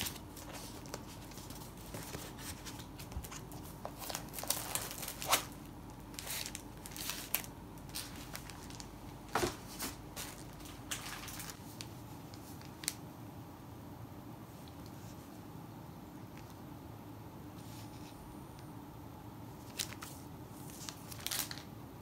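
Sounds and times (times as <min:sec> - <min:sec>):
paper rustling and sliding: 0:00.0 - 0:05.5, 0:06.2 - 0:12.9.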